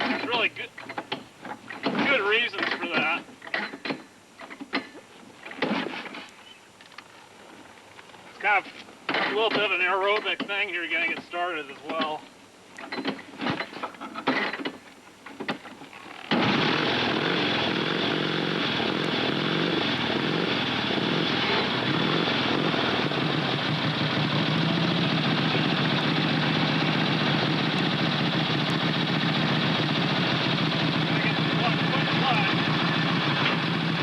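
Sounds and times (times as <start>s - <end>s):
motorcycle engine starting and idling: 15.4s - 34.0s.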